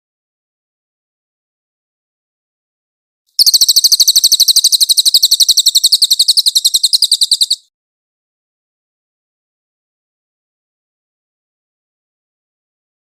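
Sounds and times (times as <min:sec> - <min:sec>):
bird trilling: 0:03.4 - 0:07.7.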